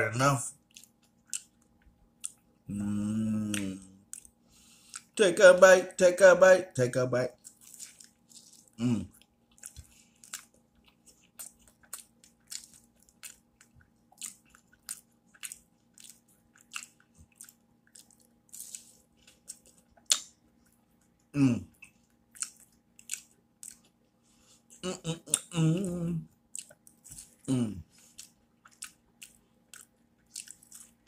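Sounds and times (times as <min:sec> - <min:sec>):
person chewing sandwich: 0:00.6 - 0:05.2, 0:07.3 - 0:31.0.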